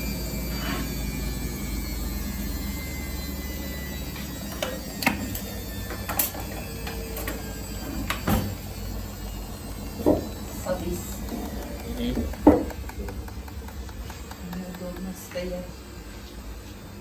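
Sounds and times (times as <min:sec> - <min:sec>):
washing machine humming: 0:00.0 - 0:17.0
sharp clicks and knocks: 0:10.9 - 0:15.6.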